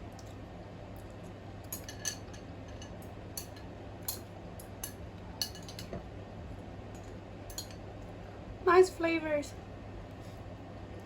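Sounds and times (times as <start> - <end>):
utensils clinking against bowl: 1.7 - 6.0.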